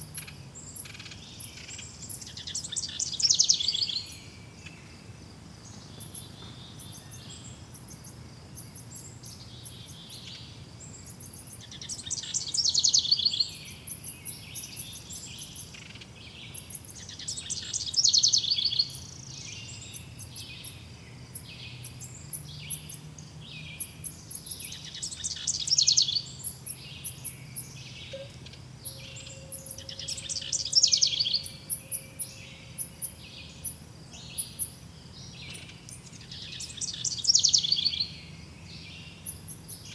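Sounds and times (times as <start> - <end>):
bird chirps: 0.0 - 5.1, 5.7 - 39.9.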